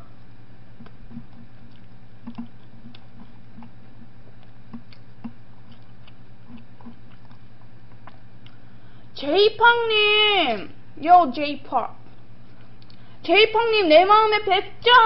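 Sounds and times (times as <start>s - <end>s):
low electrical hum: 0.0s - 15.0s
person chewing with wet clicks: 0.2s - 8.8s, 12.0s - 13.1s.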